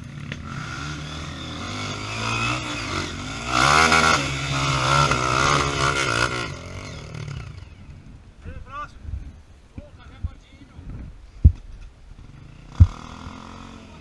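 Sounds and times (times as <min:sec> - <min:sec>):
motorcycle engine revving: 0:00.0 - 0:08.2, 0:12.1 - 0:14.0.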